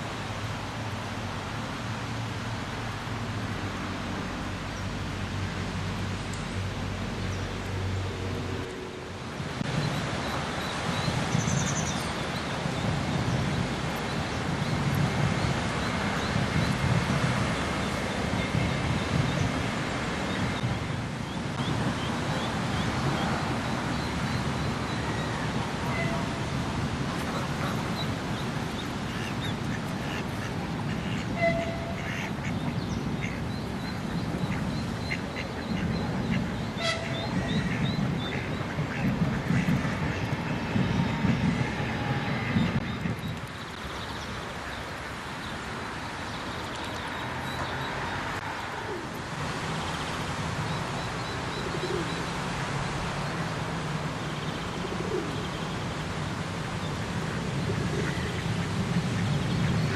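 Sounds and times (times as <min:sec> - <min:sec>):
steady low rumbling noise: 0:00.0 - 0:45.3
rushing outdoor noise: 0:00.0 - 0:59.9
wind buffeting microphone: 0:09.4 - 0:44.6.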